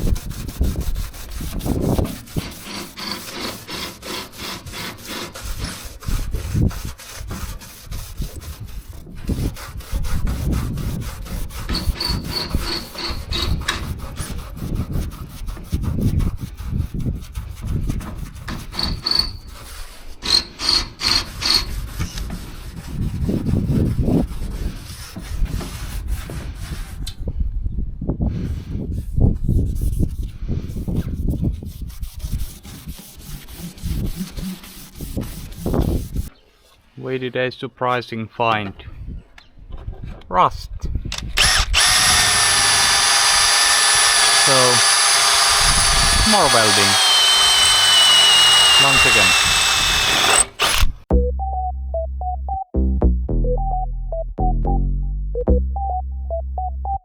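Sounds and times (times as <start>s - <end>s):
sandpaper scraping on metal: 0.0s - 27.0s, 28.9s - 36.3s, 41.9s - 50.7s.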